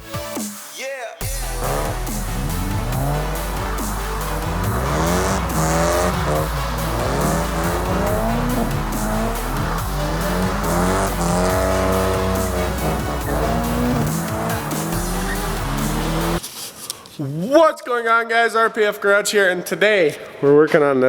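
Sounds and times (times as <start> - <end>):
background music: 0.0 - 16.4
car engine revving: 1.2 - 16.4
tyre squeal: 1.4 - 16.5.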